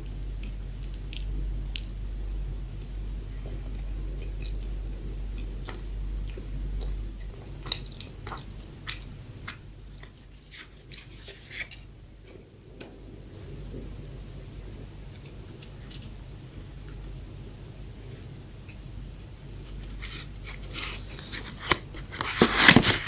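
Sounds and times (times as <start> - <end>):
chewing soft bread: 0.0 - 23.0
steady low hum: 0.0 - 23.0.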